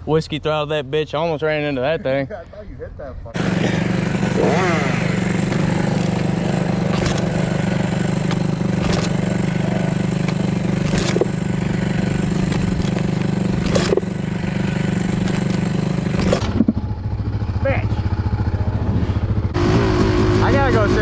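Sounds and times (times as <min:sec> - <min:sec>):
dirt bike engine idling: 0:03.4 - 0:19.6
sharp clicks or knocks: 0:04.2 - 0:16.8.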